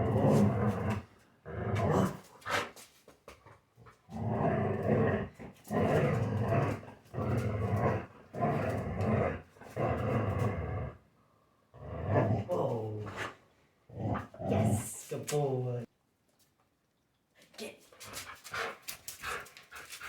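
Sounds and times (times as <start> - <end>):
dog play-growling: 0.0 - 2.7, 3.3 - 11.0, 11.8 - 14.7, 18.0 - 20.0.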